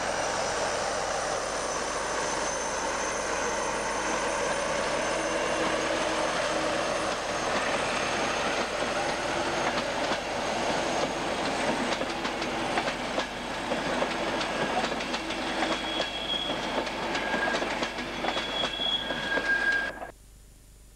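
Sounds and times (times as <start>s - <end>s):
train rolling rumble: 0.0s - 20.1s
wheel squeals: 1.6s - 8.8s, 14.4s - 20.1s.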